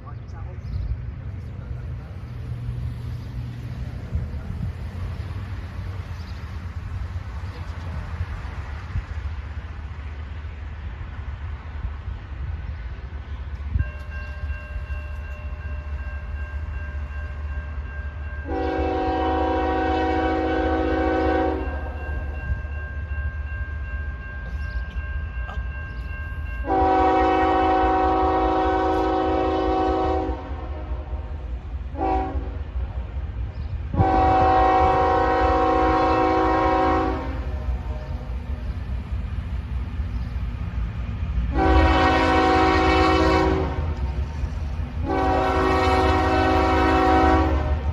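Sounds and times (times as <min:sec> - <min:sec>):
low rumble of train: 0:00.0 - 0:47.9
locomotive air horn blasts: 0:18.4 - 0:22.0, 0:26.6 - 0:32.8, 0:33.9 - 0:38.3, 0:41.5 - 0:44.0, 0:45.0 - 0:47.9.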